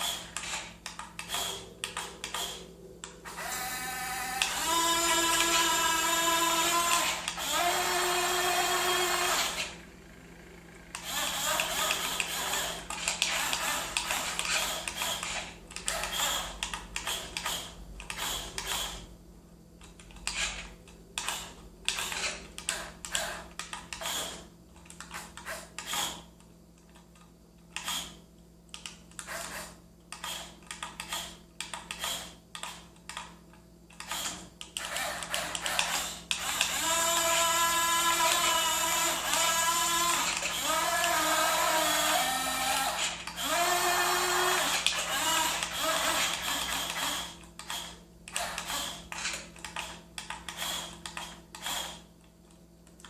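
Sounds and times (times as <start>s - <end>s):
small electric motor whirring: 0.0s - 2.6s, 3.2s - 19.1s, 20.2s - 24.5s, 34.0s - 52.1s.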